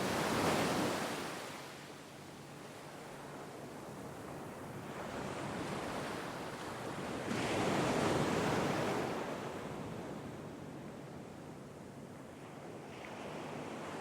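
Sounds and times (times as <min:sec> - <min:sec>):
sea waves washing on shore: 0:00.0 - 0:10.8.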